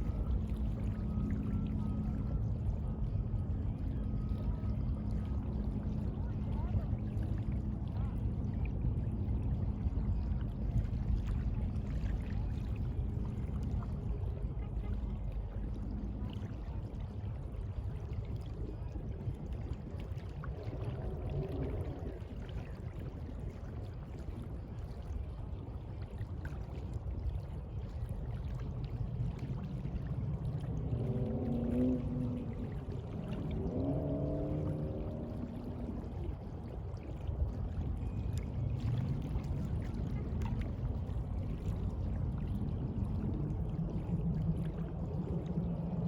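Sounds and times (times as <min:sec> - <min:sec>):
sea water washing: 0:00.0 - 0:46.0.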